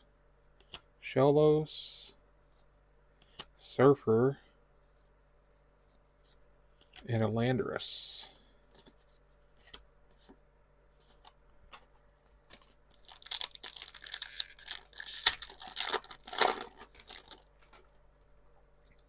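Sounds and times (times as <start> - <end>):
foil wrapper tearing and crinkling: 12.6 - 17.8.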